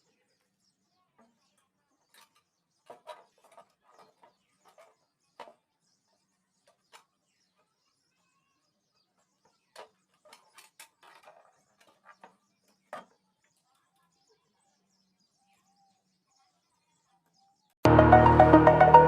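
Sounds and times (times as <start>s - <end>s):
music: 17.8s - 19.0s.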